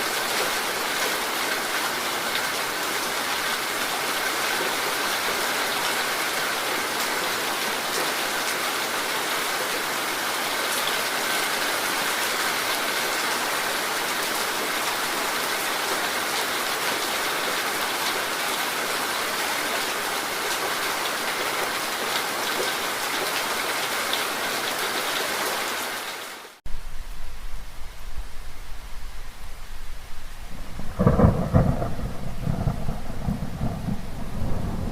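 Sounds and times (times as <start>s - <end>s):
rain falling: 0.0s - 34.9s.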